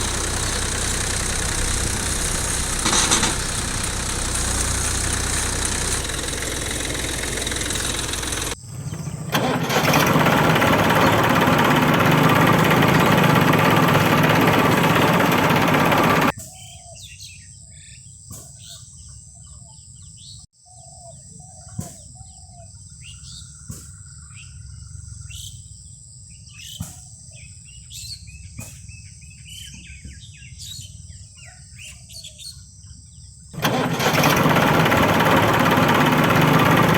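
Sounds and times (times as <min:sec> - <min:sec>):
small model tractor motor running: 0:00.0 - 0:16.3, 0:33.6 - 0:36.9
birds chirping: 0:00.0 - 0:17.4.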